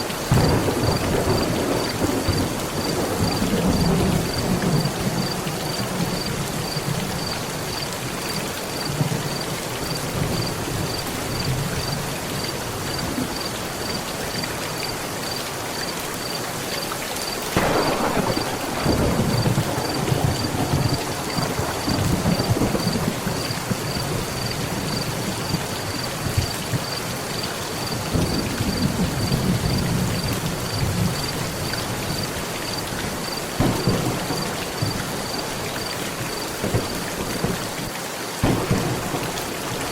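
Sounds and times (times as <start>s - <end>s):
thunder cracking and rumbling: 0.0s - 7.8s, 17.6s - 27.1s, 27.8s - 37.8s, 38.4s - 39.9s
heavy rain: 0.0s - 39.9s.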